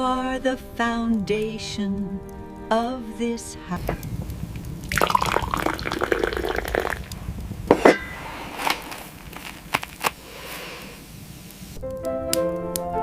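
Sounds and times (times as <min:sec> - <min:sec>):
liquid pouring into vessel: 0:04.9 - 0:07.2
knocks and clinks: 0:07.7 - 0:08.2.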